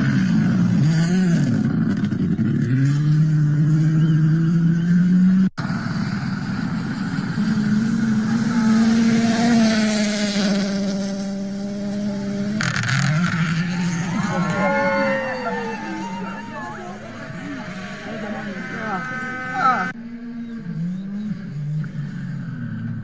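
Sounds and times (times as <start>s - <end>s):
engine revving: 0.0s - 23.0s
rally car passing: 0.0s - 23.0s
voices shouting: 13.3s - 20.0s.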